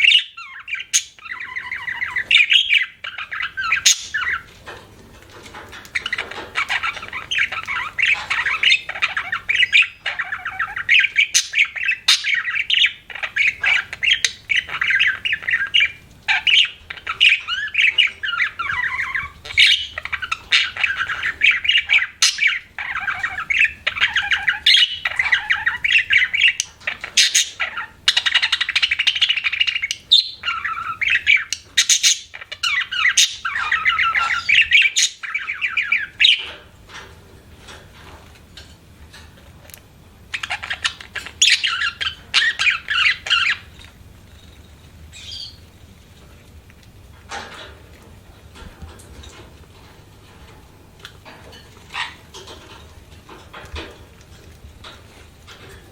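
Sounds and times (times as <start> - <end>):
budgerigar warbling and chirping: 0.0 - 4.5, 5.9 - 36.6, 40.3 - 43.8, 45.1 - 45.6, 51.9 - 52.7.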